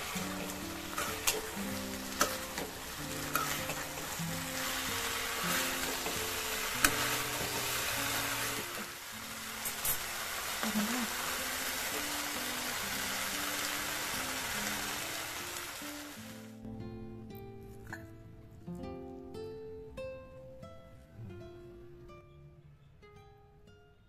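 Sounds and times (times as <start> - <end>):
metal spatula scraping wok: 0.0 - 8.9
soft background music: 0.0 - 9.9
chicken sizzling in sauce: 0.0 - 16.6.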